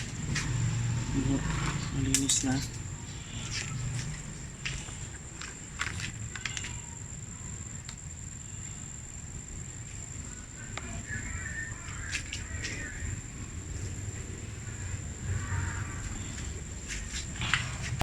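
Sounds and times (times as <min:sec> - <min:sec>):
sharp clicks: 0:05.4 - 0:06.8.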